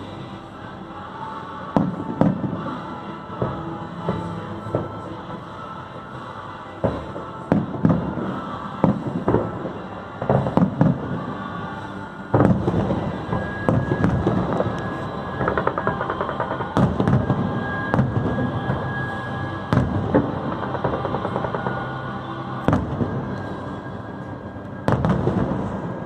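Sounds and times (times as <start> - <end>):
fireworks crackling: 6.8 - 26.0
fireworks booming: 12.3 - 22.0, 22.7 - 23.6, 24.8 - 26.0.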